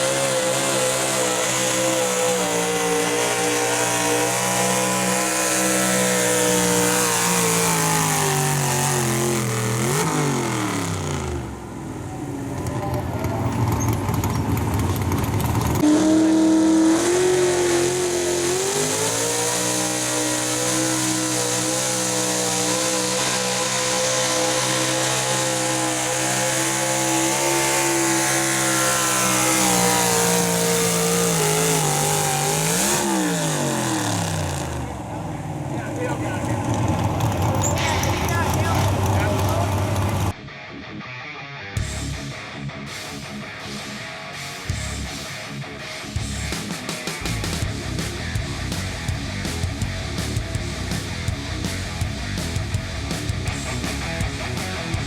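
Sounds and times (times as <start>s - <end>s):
pulling truck engine revving: 0.0s - 40.4s, 46.2s - 55.0s.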